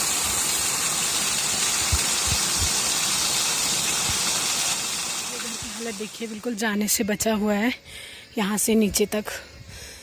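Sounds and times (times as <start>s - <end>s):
water rushing: 0.0s - 6.6s.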